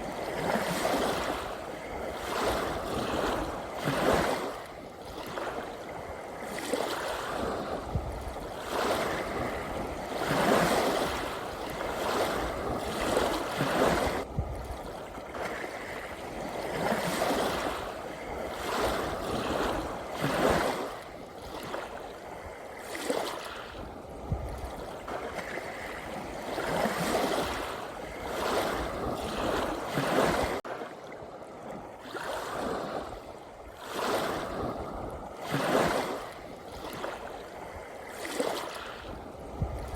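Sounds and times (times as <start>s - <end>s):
gentle ocean waves: 0.0s - 39.9s.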